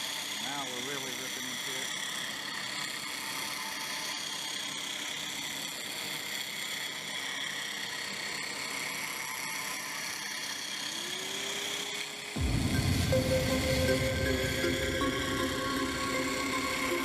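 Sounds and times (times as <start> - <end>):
cnc machine cutting metal: 0.0 - 17.0
lower tone gliding upward: 12.4 - 17.0.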